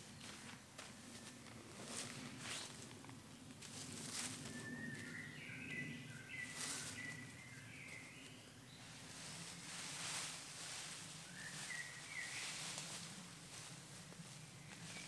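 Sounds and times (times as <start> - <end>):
songbird singing: 4.1 - 9.6, 11.0 - 13.4, 14.0 - 15.0.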